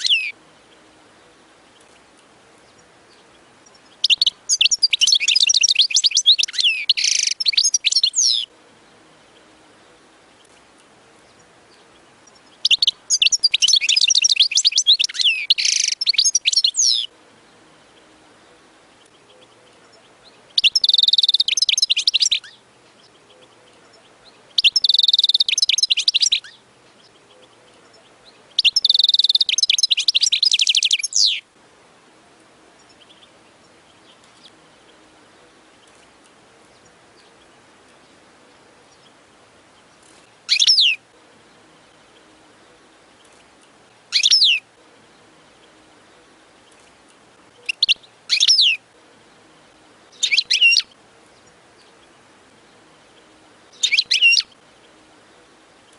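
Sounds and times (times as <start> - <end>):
goldfinch twittering song: 0.0 - 31.5, 32.8 - 55.9
bird call notes falling: 1.7 - 8.5, 9.4 - 17.1.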